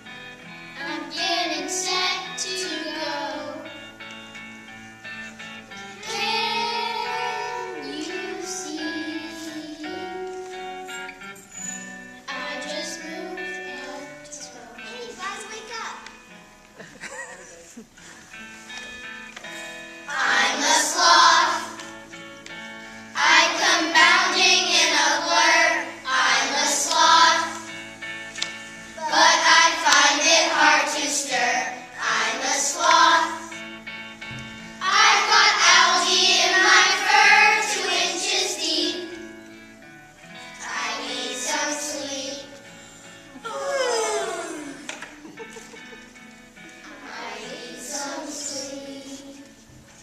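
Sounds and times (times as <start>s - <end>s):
instrumental accompaniment: 0.0s - 50.0s
children singing together: 0.8s - 4.0s, 5.9s - 10.5s, 12.3s - 15.2s, 20.1s - 22.0s, 23.1s - 27.9s, 28.9s - 33.7s, 34.6s - 39.5s, 40.6s - 42.6s, 43.4s - 46.0s, 46.7s - 49.6s.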